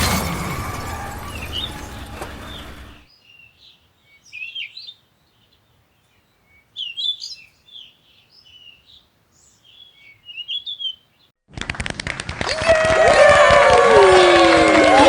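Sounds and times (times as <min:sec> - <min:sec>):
crowd cheering: 0:00.0 - 0:03.0, 0:12.4 - 0:15.0
birds chirping: 0:00.0 - 0:11.3.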